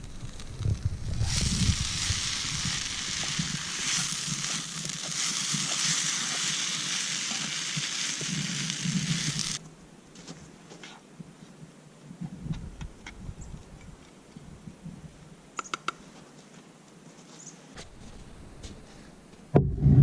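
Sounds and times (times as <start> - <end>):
food sizzling in a pan: 0.0 - 9.6.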